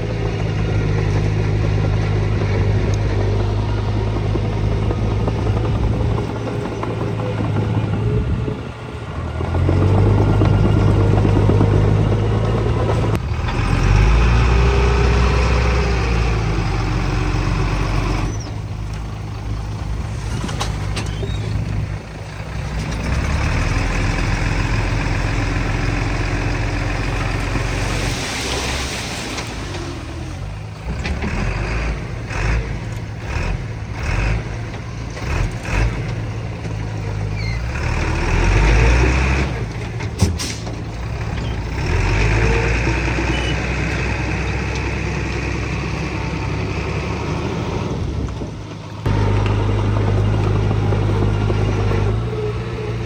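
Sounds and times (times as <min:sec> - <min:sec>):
heavy machinery diesel engines revving: 0:00.0 - 0:53.0
hissing rush: 0:27.3 - 0:30.6.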